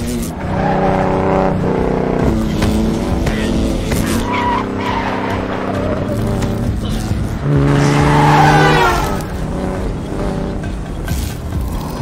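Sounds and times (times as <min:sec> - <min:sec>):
high tyre squeal: 0:00.0 - 0:01.6, 0:02.5 - 0:09.4
car engine running hard: 0:00.0 - 0:12.0.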